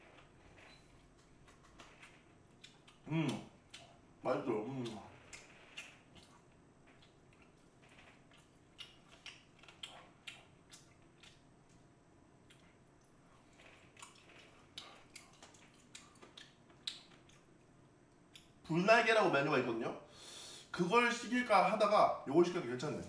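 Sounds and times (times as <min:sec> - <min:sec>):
person chewing and lip-smacking: 0:01.0 - 0:04.0, 0:04.6 - 0:11.8, 0:12.4 - 0:17.6
soft wet clicks: 0:14.0 - 0:17.5.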